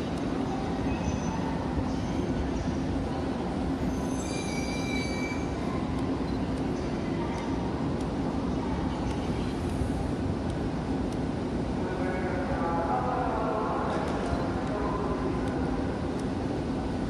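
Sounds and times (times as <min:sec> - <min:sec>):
train equipment humming: 0:00.0 - 0:17.0
high ringing tone: 0:03.9 - 0:05.5.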